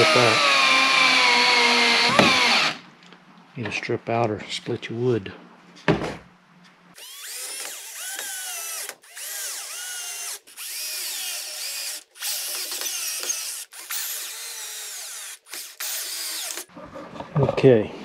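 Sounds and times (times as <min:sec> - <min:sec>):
power drill driving screws: 0:00.0 - 0:02.8, 0:07.0 - 0:16.7.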